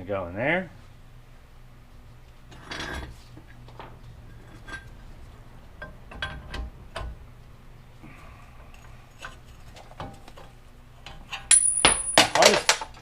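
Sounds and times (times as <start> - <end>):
metal scrape: 2.5 - 7.4
metal parts clinking: 11.0 - 13.0.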